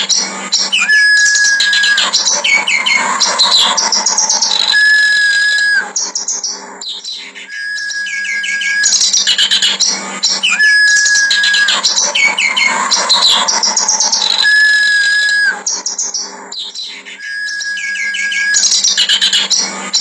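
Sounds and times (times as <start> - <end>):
long whistled note: 0.7 - 6.0, 10.2 - 15.7.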